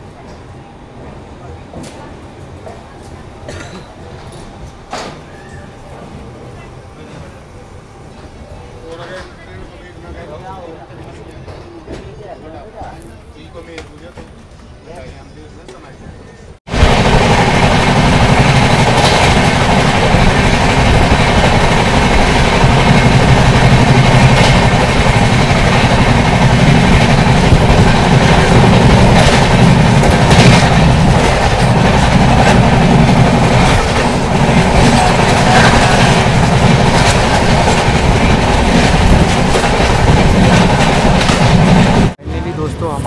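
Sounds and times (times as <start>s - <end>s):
train rumbling at speed: 15.9s - 43.0s.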